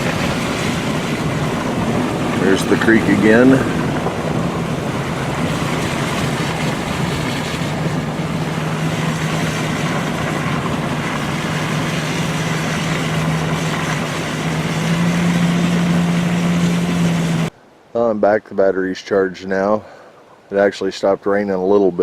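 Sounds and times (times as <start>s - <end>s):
vehicle engine humming: 0.0s - 17.6s
rain noise: 0.0s - 22.0s
road noise: 0.0s - 22.0s.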